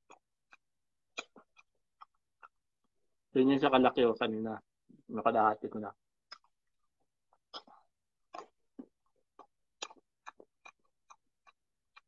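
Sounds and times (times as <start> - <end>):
wet mouth chewing clicks: 0.0 - 2.6, 6.2 - 12.0.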